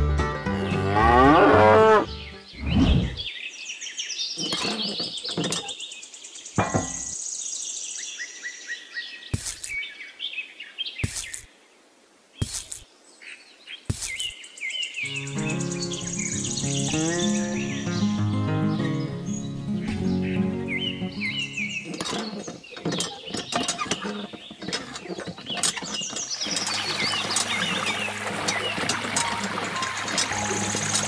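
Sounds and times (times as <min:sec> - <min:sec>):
birds chirping and twittering: 0:00.5 - 0:11.8, 0:12.4 - 0:31.0.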